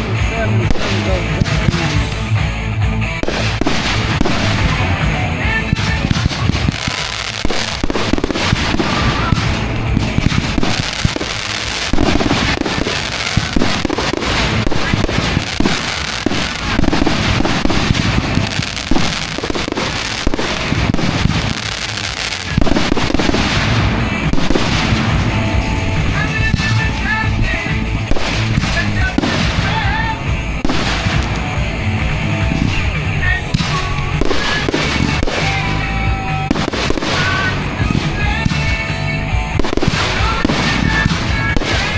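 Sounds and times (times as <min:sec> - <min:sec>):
fireworks bangs and crackles: 0:00.0 - 0:41.9
music playing: 0:00.0 - 0:41.9.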